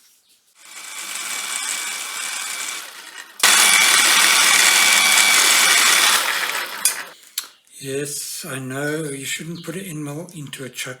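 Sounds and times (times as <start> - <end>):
machine tool cutting metal: 0.6 - 7.2.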